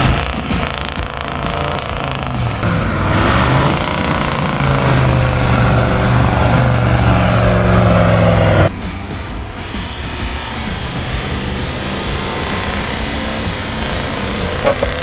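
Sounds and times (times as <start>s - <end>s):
engine running hard: 0.0s - 15.0s
broad hiss: 7.0s - 15.0s.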